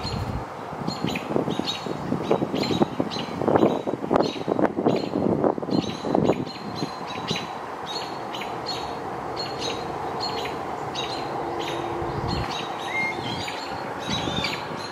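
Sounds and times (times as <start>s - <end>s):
bird calling high note: 7.1s - 14.8s.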